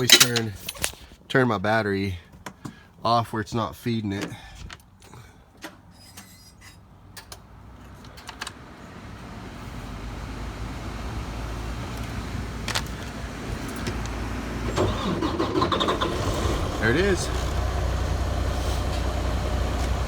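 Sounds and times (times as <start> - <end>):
diesel engine starting and idling: 9.1 - 20.0.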